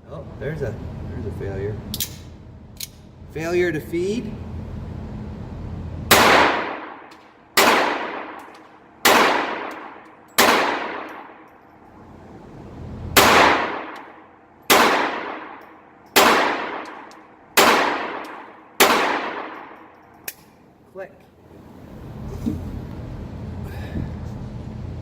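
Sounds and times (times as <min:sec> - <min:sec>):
pistol shots with echo: 0:06.1 - 0:11.5, 0:13.2 - 0:19.9.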